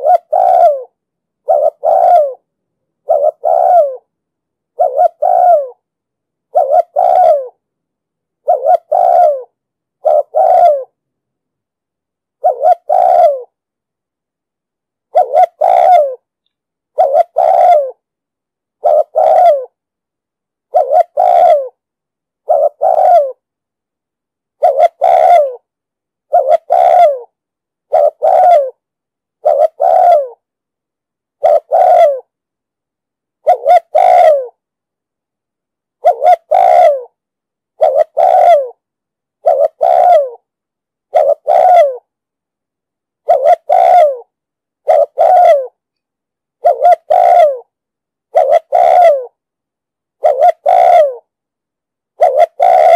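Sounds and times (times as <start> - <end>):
dove cooing: 0.0 - 4.1, 4.8 - 5.8, 6.5 - 7.6, 8.4 - 11.0, 12.4 - 13.6, 15.1 - 16.2, 16.9 - 18.0, 18.8 - 19.8, 20.7 - 21.8, 22.4 - 23.4, 24.6 - 25.7, 26.3 - 28.8, 29.4 - 30.4, 31.4 - 32.3, 33.4 - 34.6, 36.0 - 37.2, 37.8 - 38.8, 39.4 - 40.5, 41.1 - 42.1, 43.2 - 45.8, 46.6 - 47.7, 48.3 - 49.4, 50.2 - 51.3, 52.2 - 52.9.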